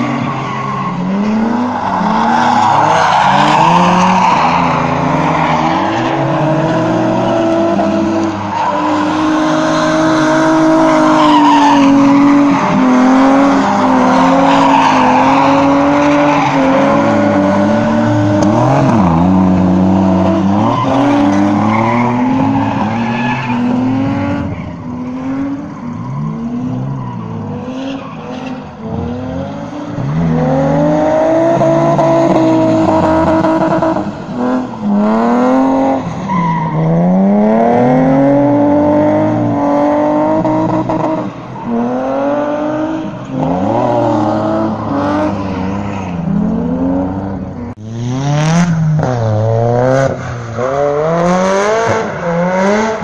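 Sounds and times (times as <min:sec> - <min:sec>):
car engine revving hard: 0:36.8 - 0:53.0.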